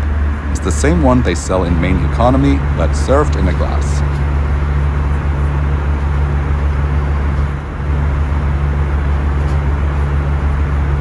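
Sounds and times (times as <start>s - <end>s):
airplane cabin engine drone: 0.0s - 11.0s.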